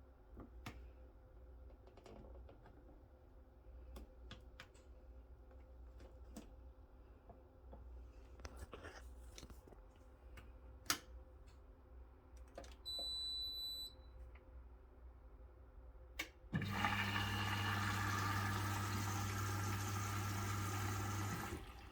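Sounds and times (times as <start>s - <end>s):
washing machine hum: 16.2s - 21.9s
water rushing into washing machine: 16.5s - 21.9s.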